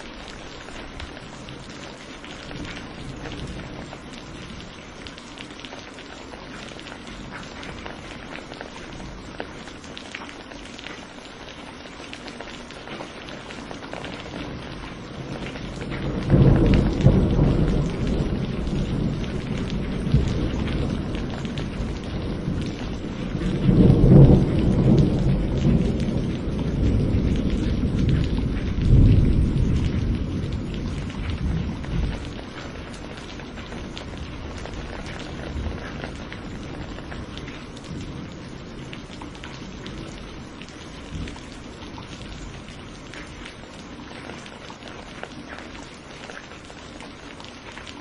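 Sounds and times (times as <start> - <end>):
steady rain: 0.0 - 48.0
deep thunder rolling: 15.3 - 40.3.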